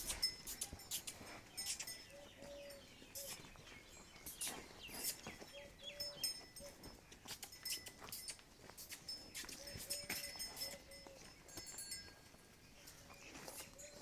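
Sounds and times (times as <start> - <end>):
high bird chirps: 0.0 - 11.1.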